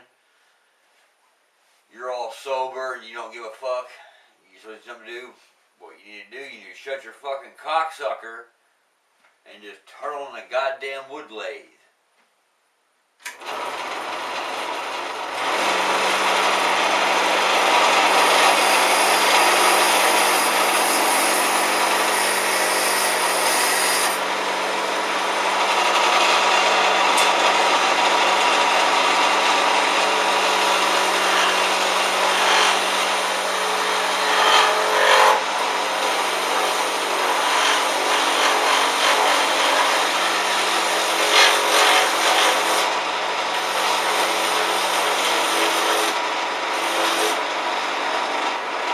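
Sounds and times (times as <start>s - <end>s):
wood lathe motor hum: 13.3s - 48.9s
tool scraping spinning wood: 13.4s - 48.9s.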